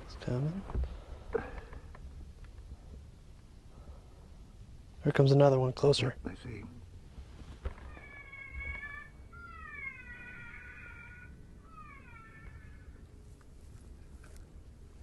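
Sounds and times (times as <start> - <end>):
wind rumble: 0.0 - 15.0
predator call whining cries: 7.8 - 13.1.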